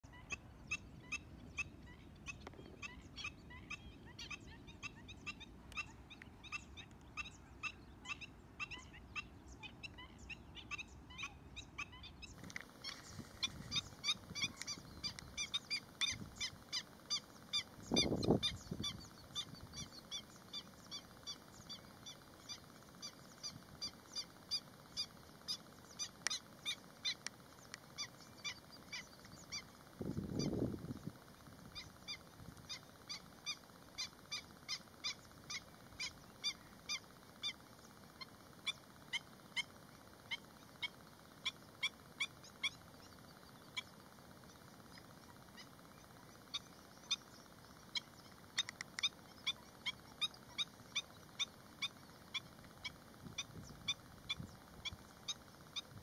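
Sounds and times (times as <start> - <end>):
bird giving sharp calls: 2.3 - 27.3.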